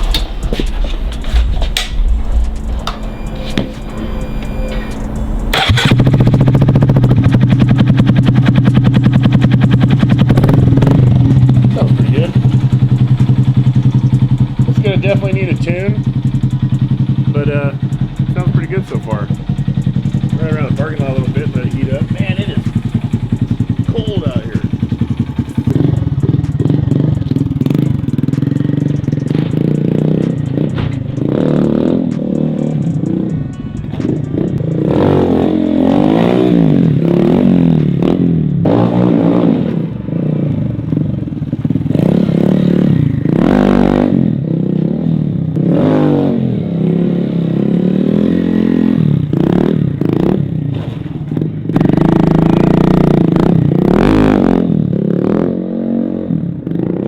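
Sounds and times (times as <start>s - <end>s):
motorcycle engine idling: 0.0s - 38.6s, 40.0s - 43.4s, 47.0s - 55.1s
person talking: 23.9s - 24.7s.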